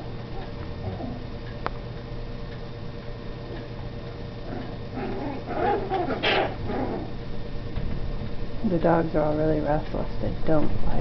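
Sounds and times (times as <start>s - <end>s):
steady low hum: 0.0s - 11.0s
dogs whining and yipping: 5.0s - 7.1s.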